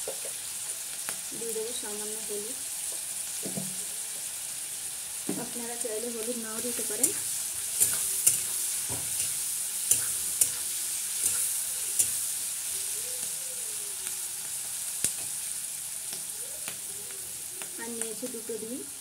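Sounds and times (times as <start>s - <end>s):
vegetables sizzling in hot oil: 0.0s - 19.0s
metal spatula scraping pan: 6.8s - 12.3s.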